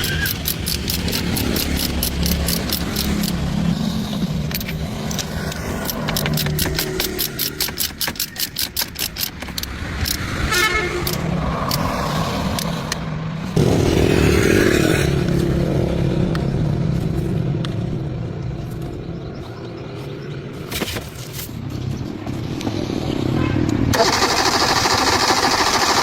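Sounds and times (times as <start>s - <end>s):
car starter cranking engine: 0.0s - 3.4s, 23.9s - 26.0s.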